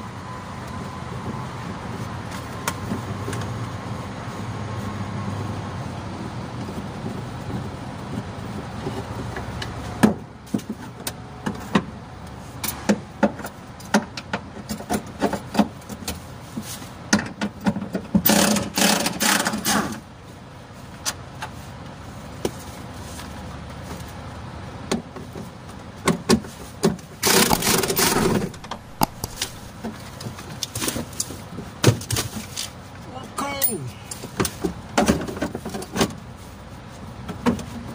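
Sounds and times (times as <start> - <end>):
sharp clicks and knocks: 26.8 - 31.3
steady low hum: 27.3 - 29.9.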